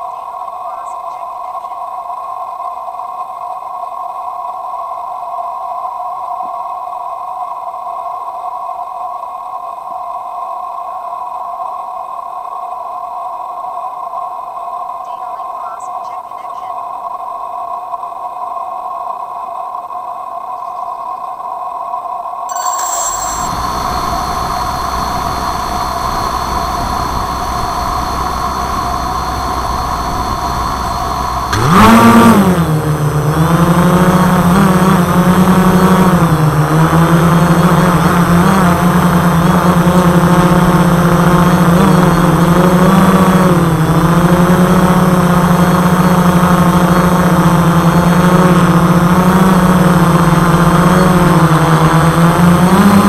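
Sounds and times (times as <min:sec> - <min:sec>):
drone motors buzzing hum: 0:00.0 - 0:04.0, 0:22.5 - 0:53.0.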